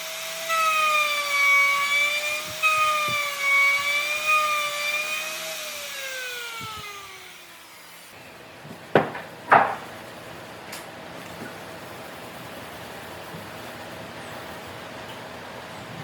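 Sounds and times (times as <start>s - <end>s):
power tool motor whining: 0.0s - 8.2s
sharp knocks: 8.6s - 10.0s.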